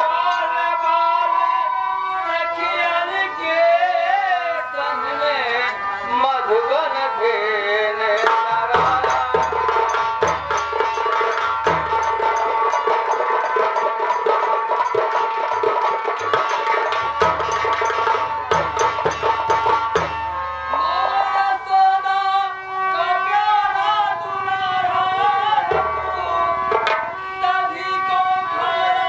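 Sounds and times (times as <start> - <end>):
sustained wavering melody: 0.0 - 29.0
fast hand-drum strokes: 8.2 - 20.5
deep drum beats: 8.2 - 20.7.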